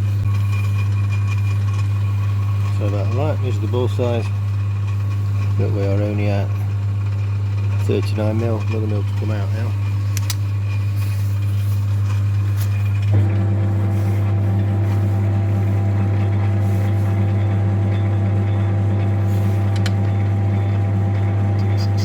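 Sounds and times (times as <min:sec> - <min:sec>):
high steady machine whine: 0:00.0 - 0:22.0
metal lathe humming: 0:00.0 - 0:22.0.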